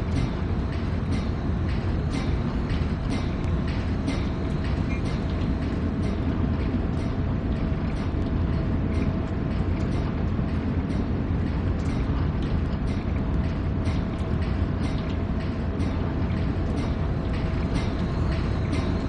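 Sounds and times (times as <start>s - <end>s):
train rumbling on track: 0.0s - 19.0s.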